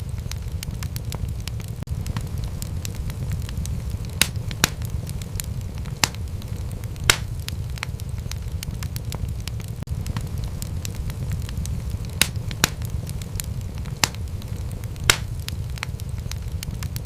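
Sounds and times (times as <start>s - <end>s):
burning wood popping: 0.0s - 17.0s
fire rumbling: 0.0s - 17.0s
wood fire crackling: 0.0s - 17.0s.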